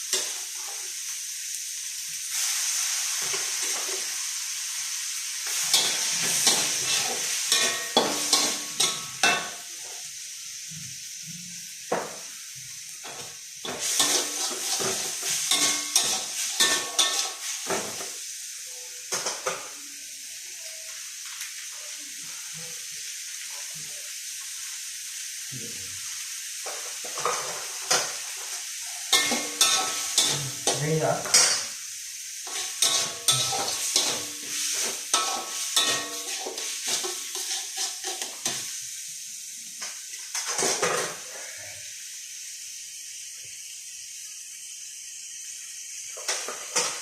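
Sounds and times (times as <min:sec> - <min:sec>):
rice sizzling in a pan: 0:00.0 - 0:47.0
spatula scraping a pan: 0:05.5 - 0:09.6, 0:13.0 - 0:18.1, 0:26.7 - 0:31.7, 0:32.4 - 0:38.8.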